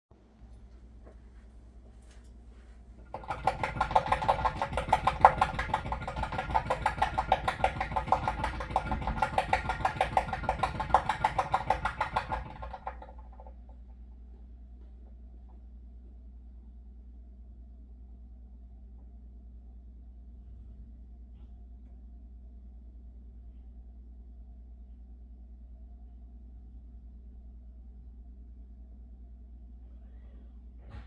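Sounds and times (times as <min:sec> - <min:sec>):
water pipe rapid knocking: 0:03.0 - 0:13.8.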